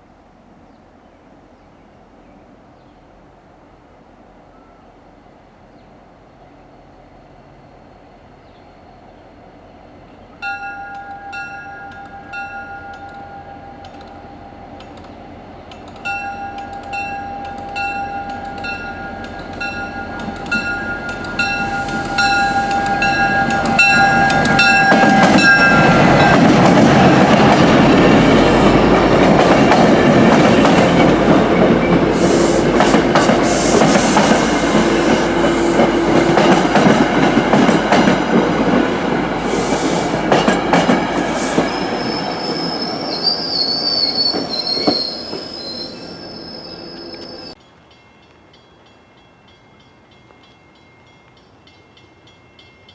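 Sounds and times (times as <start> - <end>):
train rumble: 9.3 - 47.6
crossing bell ringing: 10.4 - 14.5, 16.0 - 30.3, 47.5 - 52.9
high wheel squeal: 21.4 - 26.5, 41.2 - 47.6.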